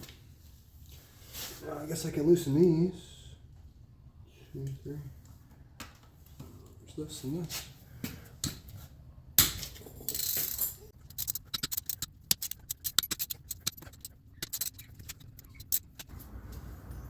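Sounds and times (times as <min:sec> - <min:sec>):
tools and bolts clinking on metal: 0:09.4 - 0:16.1
irregular clicks: 0:11.0 - 0:16.1.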